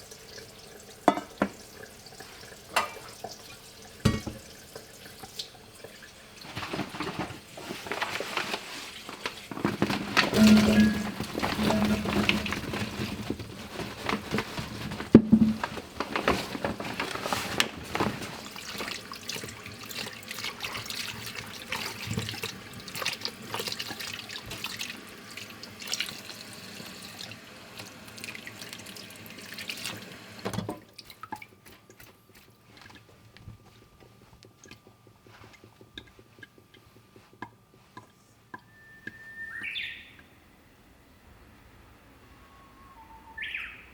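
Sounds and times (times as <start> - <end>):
tap water running into sink: 0.0 - 7.3, 9.4 - 13.6, 14.2 - 36.8
water splashing while rinsing: 0.0 - 36.0.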